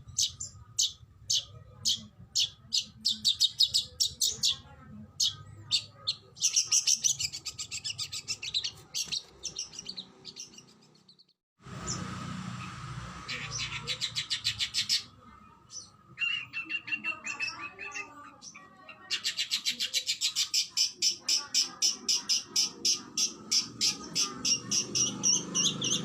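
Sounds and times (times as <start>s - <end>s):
bird singing rapid high notes: 5.2s - 26.0s.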